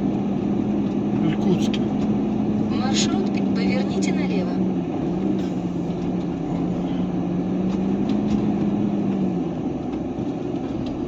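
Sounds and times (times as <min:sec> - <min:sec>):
truck engine hum from cab: 0:00.0 - 0:11.0.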